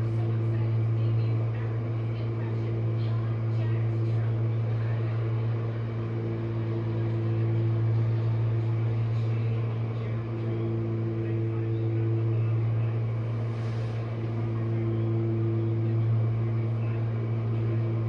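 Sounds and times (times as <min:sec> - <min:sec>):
dishwasher motor humming: 0:00.0 - 0:18.0.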